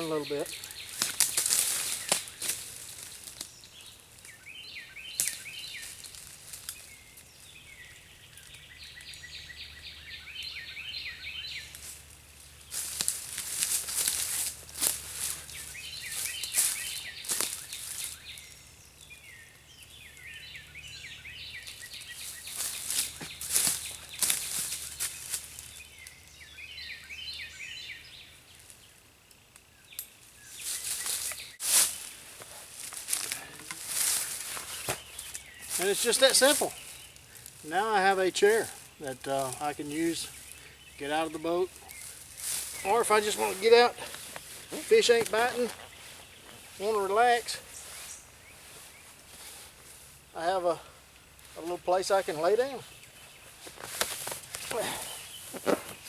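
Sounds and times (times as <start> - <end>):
rustling: 0.0 - 4.4, 11.6 - 18.6, 21.6 - 25.9, 30.3 - 50.3, 51.4 - 56.0
bird chirping: 0.0 - 56.0.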